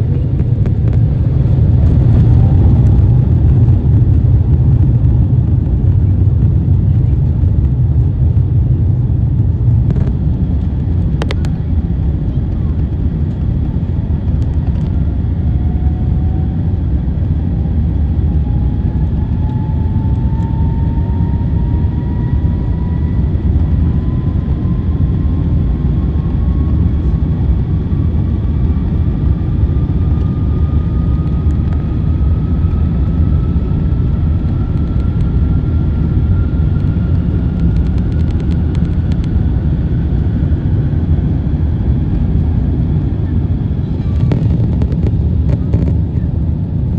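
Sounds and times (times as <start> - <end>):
airliner cabin rumble: 0.0 - 46.9
jet engine whine: 0.0 - 46.9.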